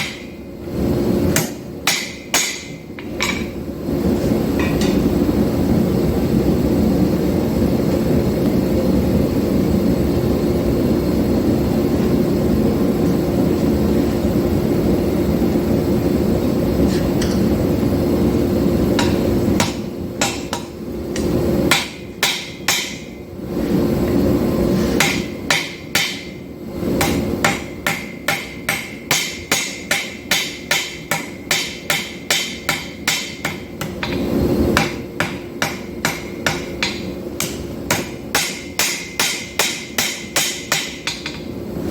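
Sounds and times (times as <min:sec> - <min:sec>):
mechanical running noise with hum: 0:00.0 - 0:41.9
hammer blows on anvil: 0:01.3 - 0:03.6, 0:18.9 - 0:23.2, 0:25.0 - 0:26.4, 0:27.0 - 0:41.5.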